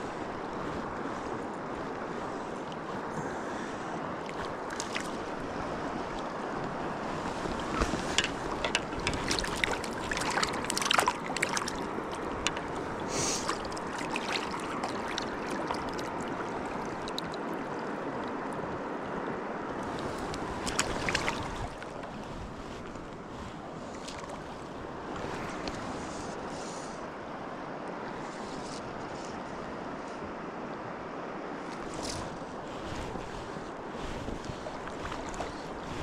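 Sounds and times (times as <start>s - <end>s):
river water rushing: 0.0s - 36.0s
short sharp clicks and splashes: 7.8s - 11.8s.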